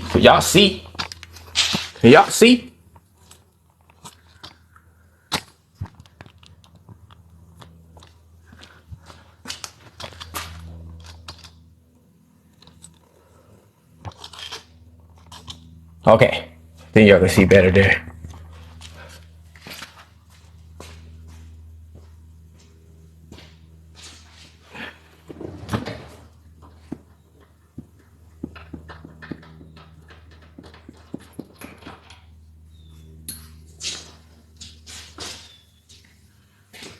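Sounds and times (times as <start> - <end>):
steady low hum: 0.0 - 36.9
rustling clatter: 18.1 - 36.9
handling clicks and knocks: 25.3 - 32.5.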